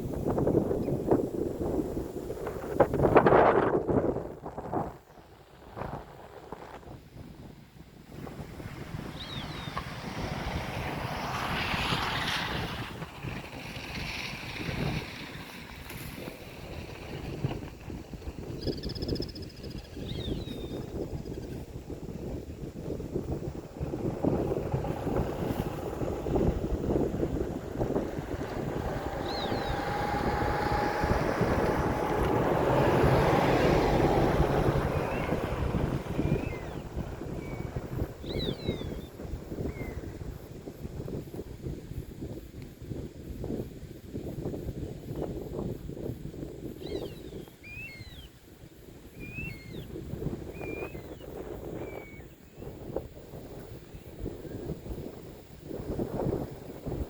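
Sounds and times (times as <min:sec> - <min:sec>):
wind buffeting the microphone: 0:00.0 - 0:57.0
bird chirp: 0:09.1 - 0:09.8, 0:18.5 - 0:21.6, 0:29.2 - 0:29.9, 0:36.2 - 0:40.1, 0:46.8 - 0:48.3, 0:49.2 - 0:49.9, 0:50.5 - 0:52.7.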